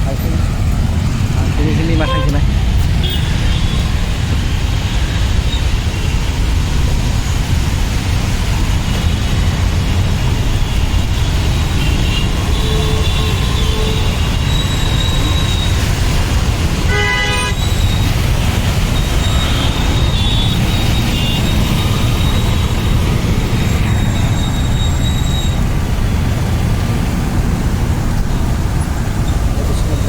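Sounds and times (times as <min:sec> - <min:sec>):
traffic rumble: 0:00.0 - 0:30.0
vehicle horns tooting: 0:01.8 - 0:03.9, 0:10.6 - 0:15.9, 0:16.7 - 0:22.9.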